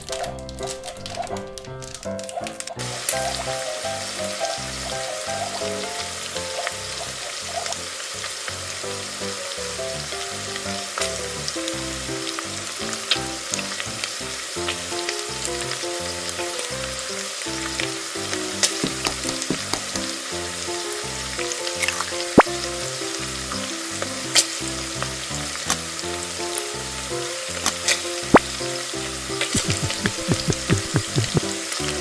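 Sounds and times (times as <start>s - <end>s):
toy stove sizzling: 2.5s - 4.4s, 27.5s - 28.5s
simple background music: 28.1s - 32.0s.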